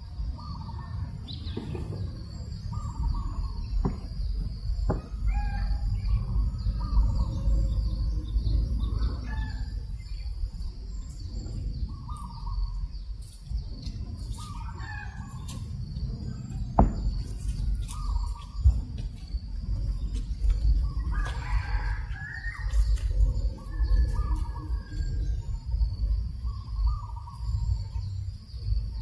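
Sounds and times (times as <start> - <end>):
wind on microphone: 0.0 - 29.0
rooster crowing: 14.6 - 15.6, 20.9 - 23.0
chickens calling: 19.7 - 28.3.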